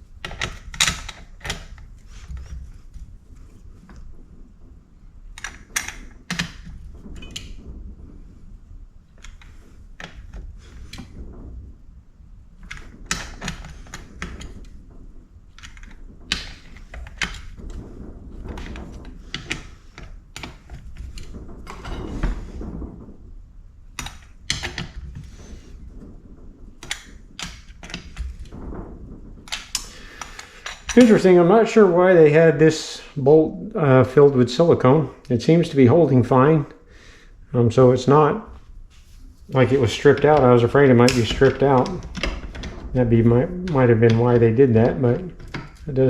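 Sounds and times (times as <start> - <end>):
sharp metal clicks and knocks: 0.1 - 4.1, 5.3 - 7.7, 12.6 - 23.0, 23.9 - 31.2, 39.5 - 46.0.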